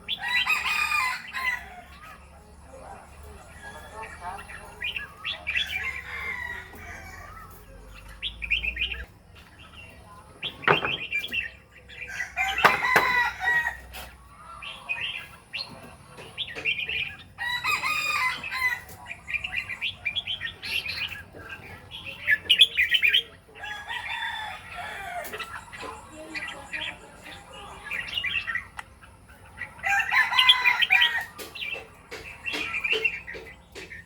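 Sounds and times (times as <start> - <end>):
bird calling and chirping: 0.0 - 34.0
sharp knocks: 10.6 - 11.3, 12.6 - 13.2.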